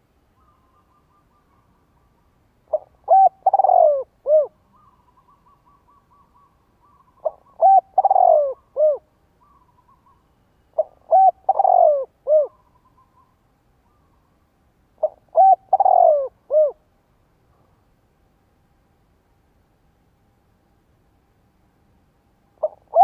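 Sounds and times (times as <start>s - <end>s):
dove cooing: 0.4s - 10.2s, 10.8s - 13.3s, 15.0s - 16.8s, 22.6s - 23.0s.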